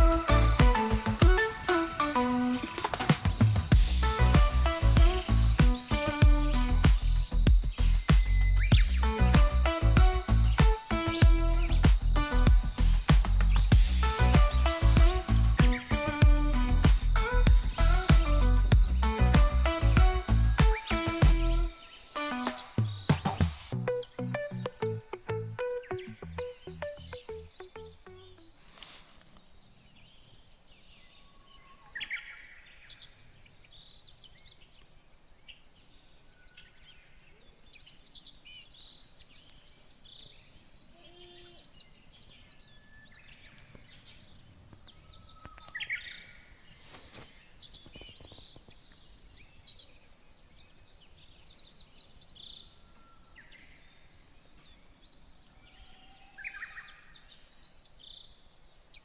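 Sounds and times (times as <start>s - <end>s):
birds chirping and calling: 0.0s - 58.3s.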